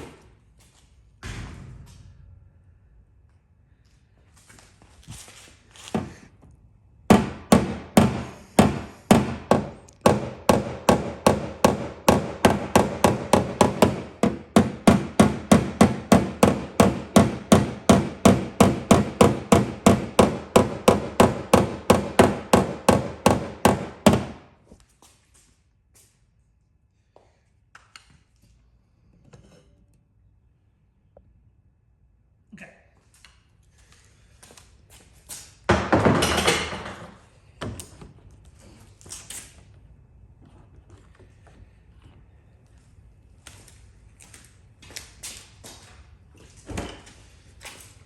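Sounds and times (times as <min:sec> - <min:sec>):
hammer tapping on metal panel: 0:07.1 - 0:24.4.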